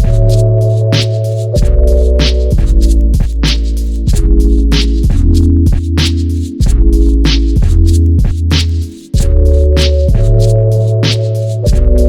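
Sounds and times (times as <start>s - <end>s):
electronic music with deep bass: 0.0s - 12.0s.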